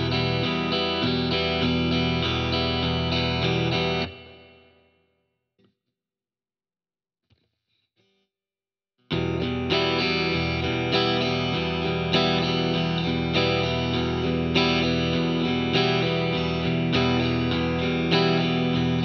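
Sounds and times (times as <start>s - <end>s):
electric guitar strumming chords: 0.0s - 4.7s, 9.1s - 19.0s.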